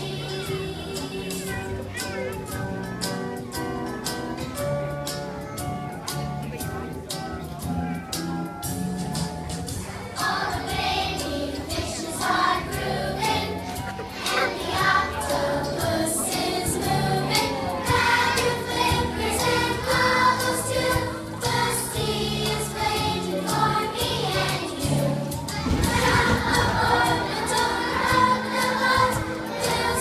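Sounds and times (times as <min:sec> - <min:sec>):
children singing together: 0:00.0 - 0:02.5, 0:10.0 - 0:30.0
instrumental accompaniment: 0:01.2 - 0:30.0.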